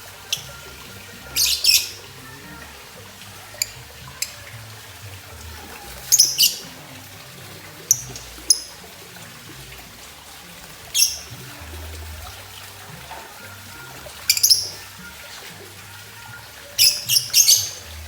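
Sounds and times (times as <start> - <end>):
lovebird chirping: 1.2 - 2.4, 6.0 - 6.8, 10.9 - 11.4, 14.3 - 14.9, 16.8 - 18.0.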